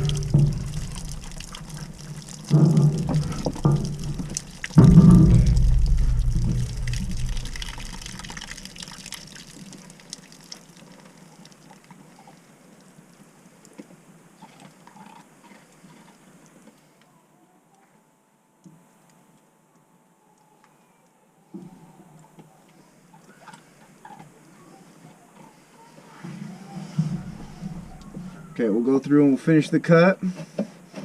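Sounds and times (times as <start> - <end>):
water pouring from drain pipe: 0.0 - 12.4, 26.7 - 28.6.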